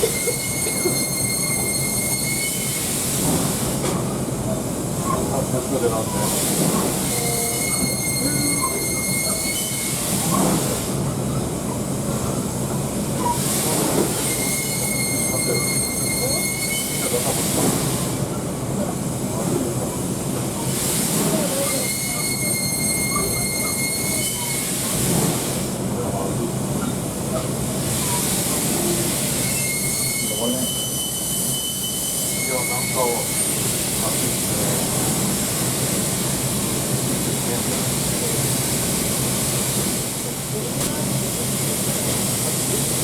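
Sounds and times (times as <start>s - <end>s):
high-pitched metallic squeal: 0.0s - 2.8s, 7.1s - 10.1s, 14.2s - 17.2s, 21.7s - 24.7s, 29.4s - 33.6s
steam locomotive working slowly: 0.0s - 43.0s
steam hissing bursts: 6.1s - 11.1s, 12.5s - 18.3s, 20.6s - 25.8s, 27.7s - 43.0s.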